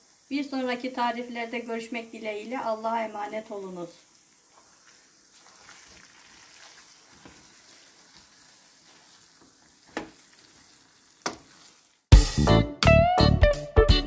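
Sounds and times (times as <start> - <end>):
food sizzling faintly in a pan: 0.0 - 12.1
wooden spoon stirring: 4.1 - 12.1.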